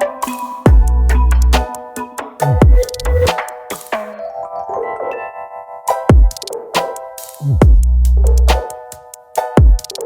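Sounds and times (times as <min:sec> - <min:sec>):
deep falling kick drums: 0:07.6 - 0:07.9.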